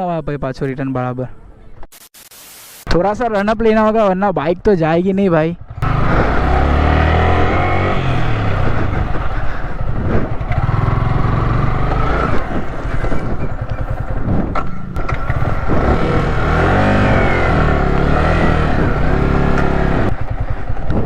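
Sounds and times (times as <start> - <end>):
wind: 0.0 - 2.1, 2.7 - 21.0
motorcycle engine revving: 5.6 - 21.0.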